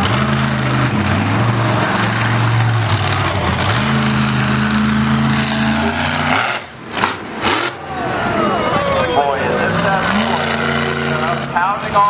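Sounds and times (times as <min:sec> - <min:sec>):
loud vehicle engine running hard: 0:00.0 - 0:12.0.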